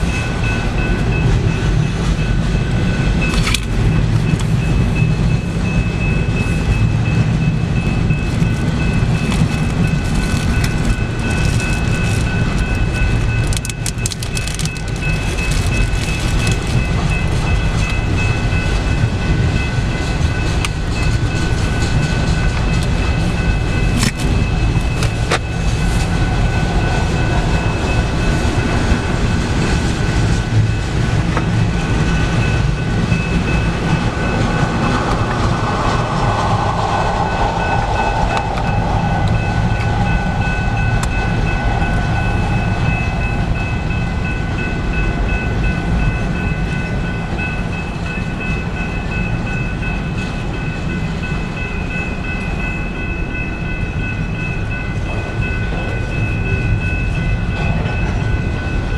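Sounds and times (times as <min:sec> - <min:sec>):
train cars rumbling on rails: 0:00.0 - 0:58.9
high-pitched ringing: 0:31.8 - 0:58.9.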